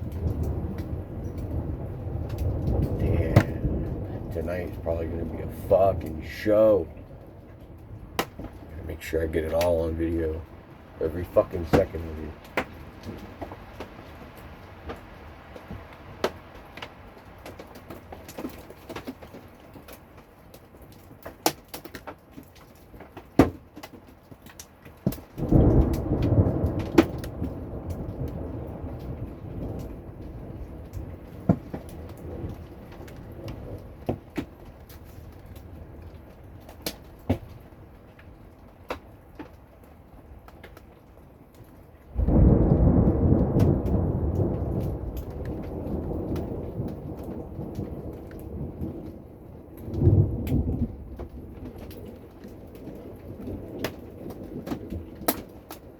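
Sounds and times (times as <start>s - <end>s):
thunder rolling: 0.0s - 16.3s, 25.4s - 37.8s, 42.1s - 55.9s
raindrops tapping a hard surface: 0.0s - 55.9s
steady rain: 0.0s - 55.9s.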